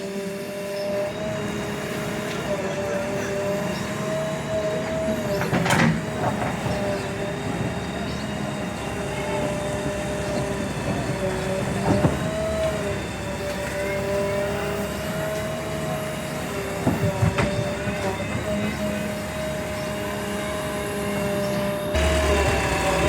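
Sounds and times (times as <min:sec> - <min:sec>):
diesel engine whining: 0:00.0 - 0:23.0.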